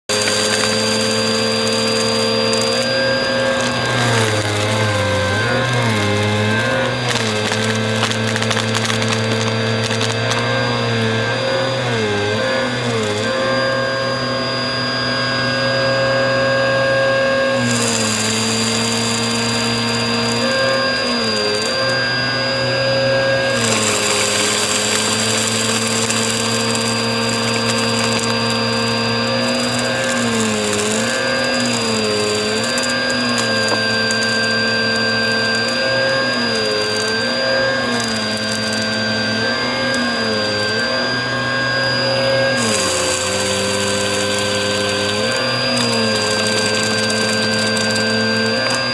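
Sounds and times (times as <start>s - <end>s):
vacuum cleaner running: 0.0s - 48.9s
gritty debris crunching: 0.1s - 10.6s.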